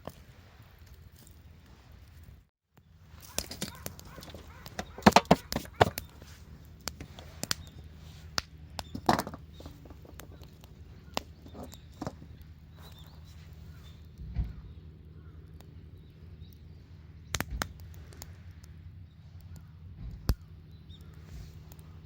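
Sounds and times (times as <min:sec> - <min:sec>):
steady low hum: 0:00.6 - 0:22.0
wood knocking and clattering: 0:04.8 - 0:06.0.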